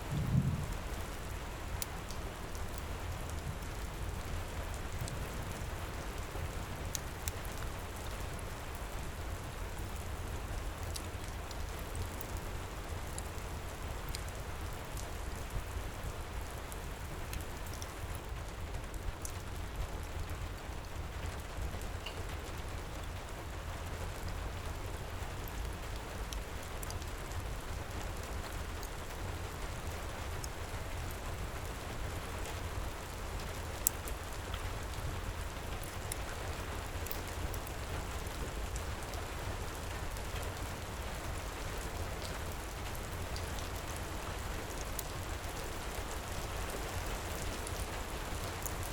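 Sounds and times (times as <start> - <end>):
low rumble: 0.0 - 1.0
heavy rain: 0.0 - 48.9
wood fire crackling: 0.0 - 48.9.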